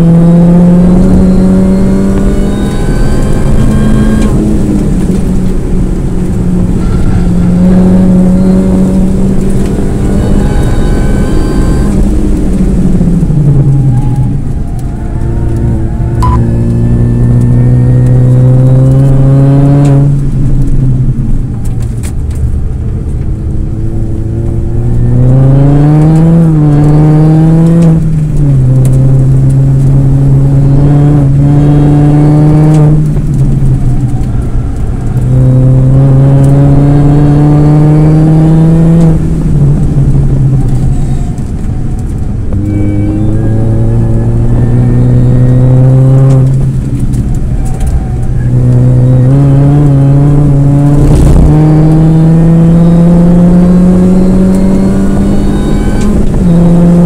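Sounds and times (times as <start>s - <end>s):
car engine revving hard: 0.0s - 20.8s, 23.4s - 57.0s.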